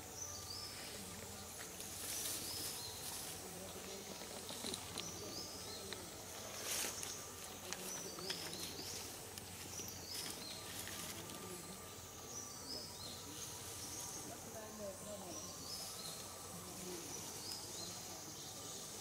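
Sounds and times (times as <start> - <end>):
steady background hiss: 0.0 - 19.0
faint clicks and rustles: 1.0 - 11.6.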